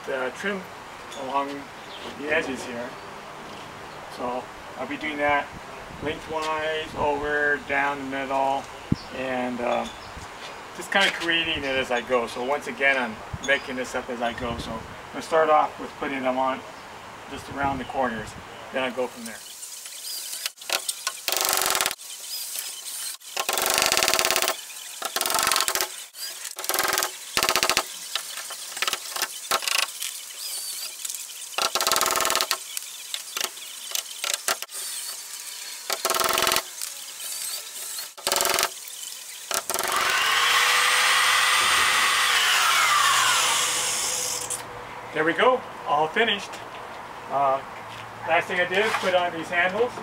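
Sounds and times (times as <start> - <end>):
electric drill driving screws: 19.2 - 44.6.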